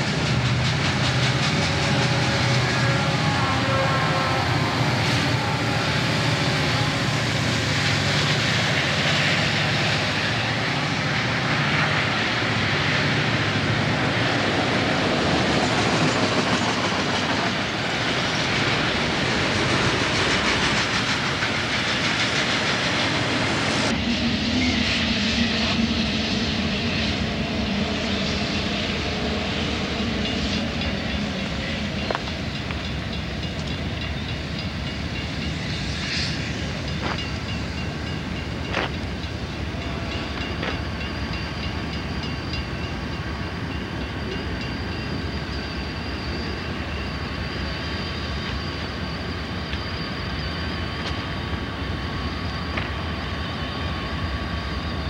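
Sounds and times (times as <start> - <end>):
diesel locomotive engines rumbling: 0.0 - 55.0
distant freight train: 0.0 - 55.0
wheels clattering over rail joints: 36.9 - 39.1.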